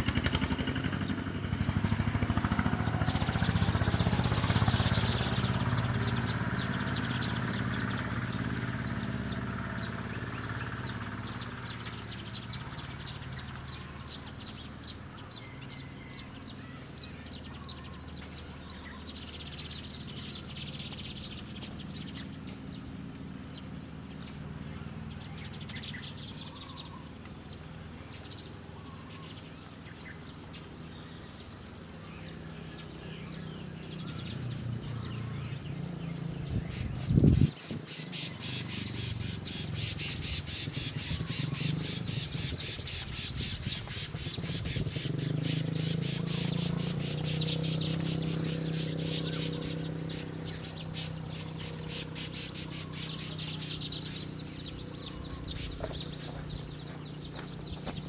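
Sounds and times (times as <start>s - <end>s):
fast high bird chatter: 0.0s - 24.3s, 36.4s - 58.0s
wild birds chirping: 0.0s - 58.0s.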